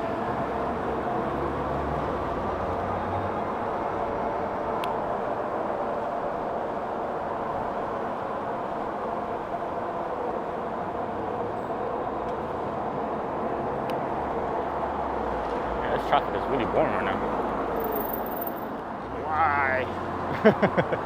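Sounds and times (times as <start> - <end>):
tyres humming on road: 0.0 - 21.0.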